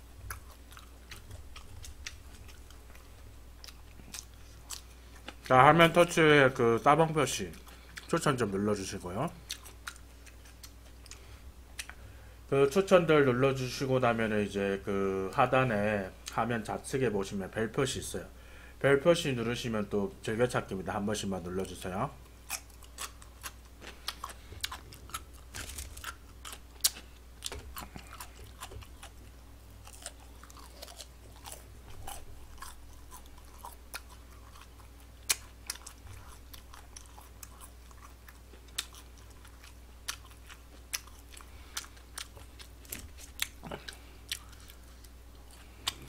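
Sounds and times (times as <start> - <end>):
person chewing food: 0.0 - 5.6, 7.4 - 8.4, 9.3 - 12.2, 22.2 - 46.0.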